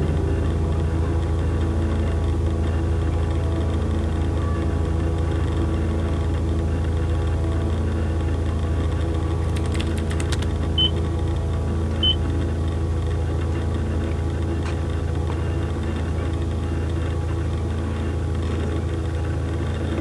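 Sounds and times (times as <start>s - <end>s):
low droning hum: 0.0s - 20.0s
clicks: 9.5s - 11.0s.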